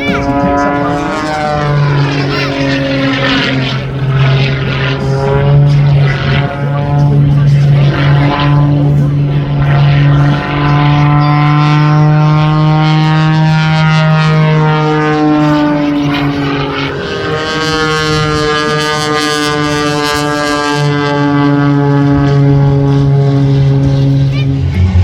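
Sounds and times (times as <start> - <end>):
airplane piston engine running: 0.0 - 25.0.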